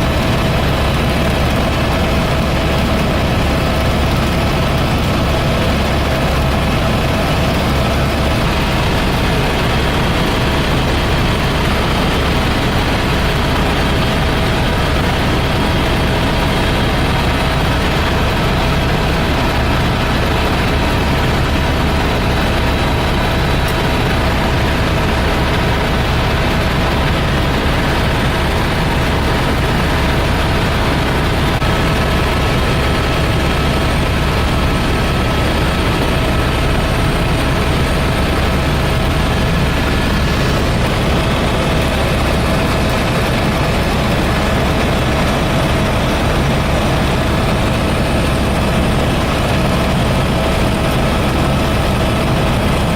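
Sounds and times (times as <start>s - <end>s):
helicopter rotor and engine drone: 0.0s - 52.9s.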